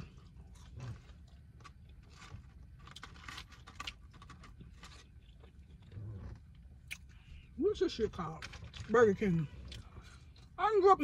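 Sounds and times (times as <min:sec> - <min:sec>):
faint chewing: 0:00.0 - 0:07.5.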